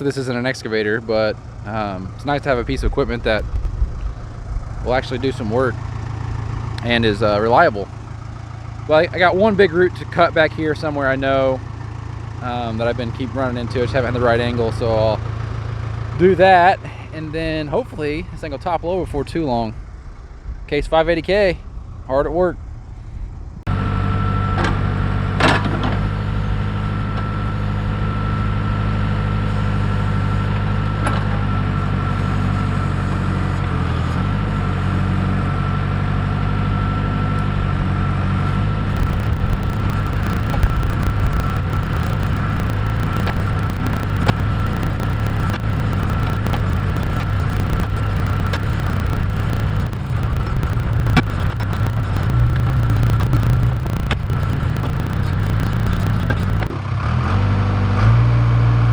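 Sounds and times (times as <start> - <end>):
high whine: 0.0 - 11.8, 38.8 - 56.8.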